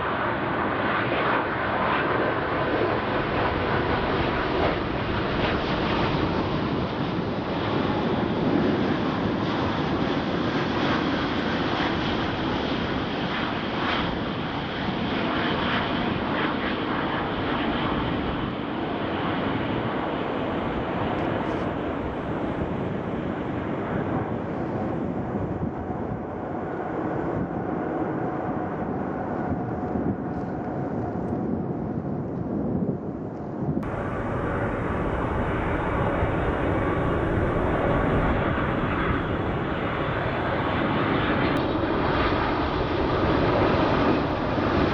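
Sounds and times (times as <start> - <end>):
jet engines roaring: 0.0 - 44.9
faint steady whine: 33.8 - 40.6.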